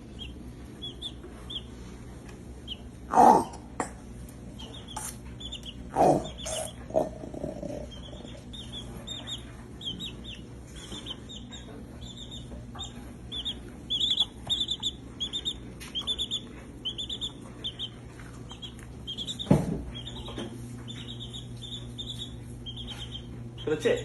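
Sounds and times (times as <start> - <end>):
baby chick peeping: 0.0 - 24.0
low hum: 0.0 - 24.0.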